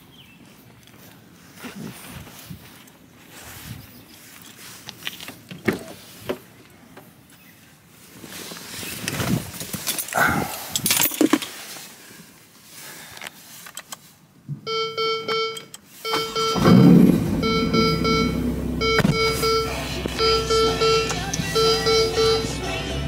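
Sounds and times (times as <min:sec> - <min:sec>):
rustling and clicks in car seat: 0:13.1 - 0:14.6
car engine starting and idling: 0:15.4 - 0:23.0
repeating electronic tone: 0:16.1 - 0:22.6.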